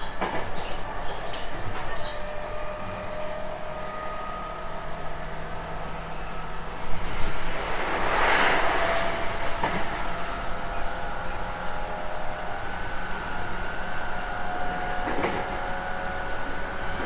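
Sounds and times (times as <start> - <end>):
electric train running rumble: 0.0 - 17.0
rushing swell: 6.3 - 11.4.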